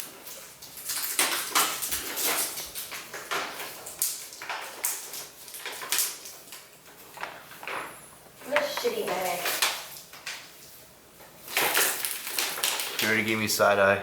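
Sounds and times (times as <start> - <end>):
rustling and crinkling handling: 0.0 - 13.7
short crackles and clicks: 11.5 - 13.4.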